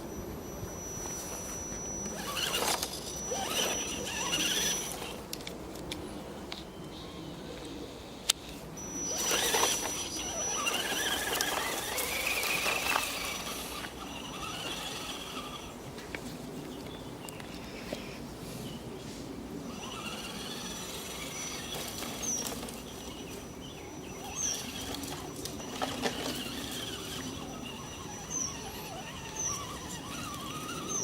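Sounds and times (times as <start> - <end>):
toy car electric motor whining: 0.0 - 5.5, 8.8 - 15.8, 19.6 - 31.0.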